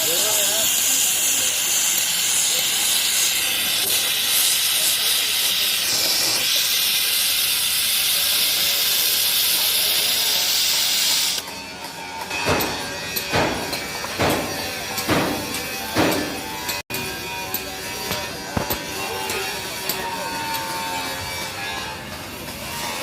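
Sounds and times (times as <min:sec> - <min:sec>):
gas torch flame hissing: 0:00.0 - 0:11.4.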